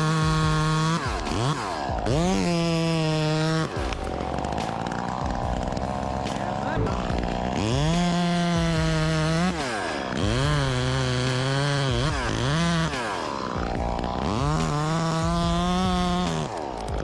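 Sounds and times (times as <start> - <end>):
chainsaw revving: 0.0 - 17.0.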